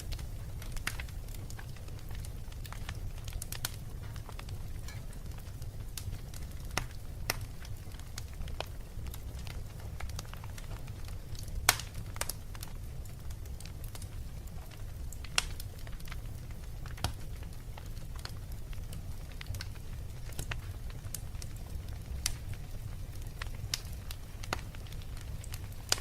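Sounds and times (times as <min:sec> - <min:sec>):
sharp pops of fire: 0:00.0 - 0:12.7, 0:15.2 - 0:16.2, 0:16.9 - 0:17.3
fire crackling: 0:00.0 - 0:26.0.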